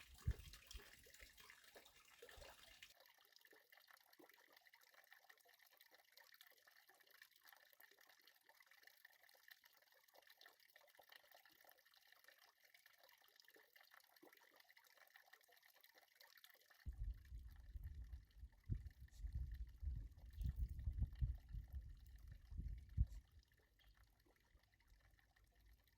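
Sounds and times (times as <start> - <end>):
water trickling and dripping: 0.0 - 25.9
low rumble: 16.9 - 23.4.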